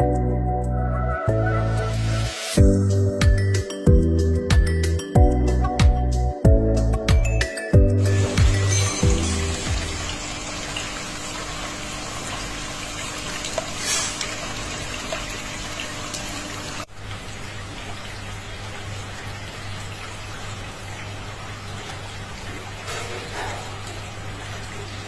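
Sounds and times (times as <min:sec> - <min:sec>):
rushing water: 0:08.0 - 0:25.0.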